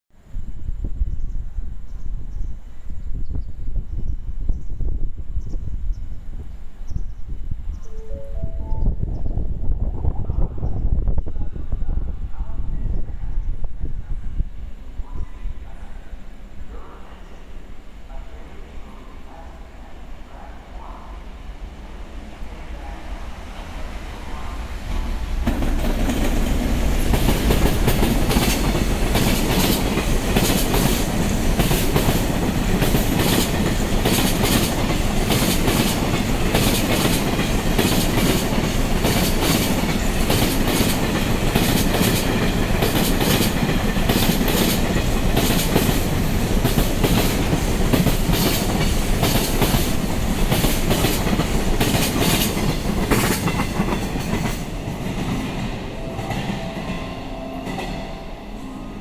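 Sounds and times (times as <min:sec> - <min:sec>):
freight train wheels rumbling: 0:09.8 - 0:59.0
clickety-clack over rail joints: 0:23.1 - 0:57.0.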